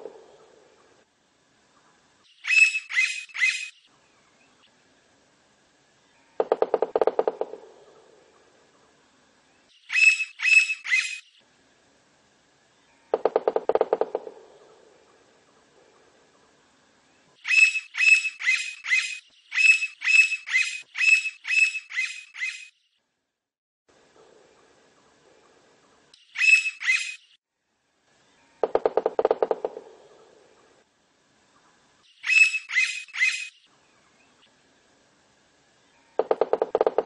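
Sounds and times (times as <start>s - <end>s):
woodpecker ringing calls: 2.4s - 3.8s, 9.9s - 11.3s, 17.4s - 22.7s, 26.3s - 27.2s, 32.2s - 33.6s, 36.0s - 37.0s
woodpecker drumming: 6.4s - 8.5s, 13.1s - 15.2s, 28.6s - 30.4s, 36.2s - 37.0s.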